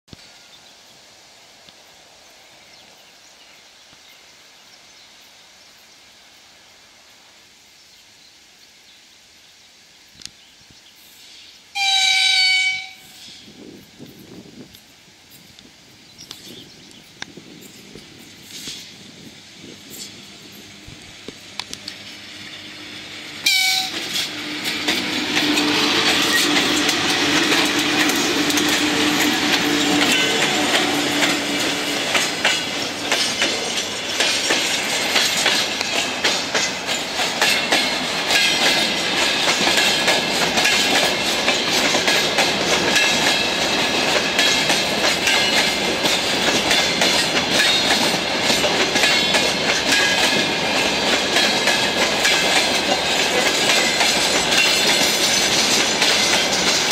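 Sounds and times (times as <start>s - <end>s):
electric locomotive steady tone: 8.6s - 56.9s.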